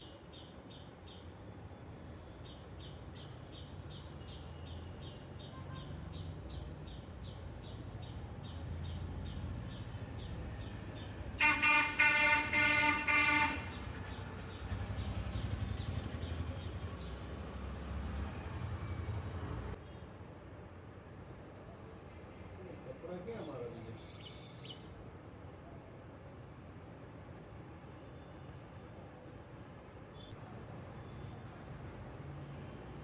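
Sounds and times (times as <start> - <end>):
bird chirping: 2.6 - 17.6
low traffic rumble: 3.2 - 19.8, 29.8 - 33.0
vehicle horn honking: 11.4 - 13.9.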